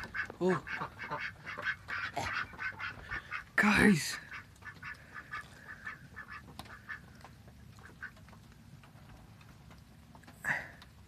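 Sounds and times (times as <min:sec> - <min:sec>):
ducks quacking softly: 0:00.0 - 0:08.4.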